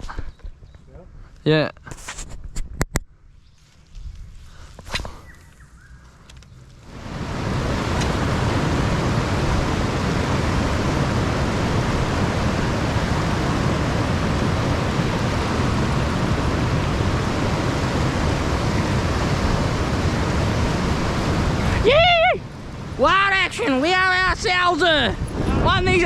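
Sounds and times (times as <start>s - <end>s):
creek water rushing over rocks: 6.9s - 10.0s, 13.2s - 18.1s.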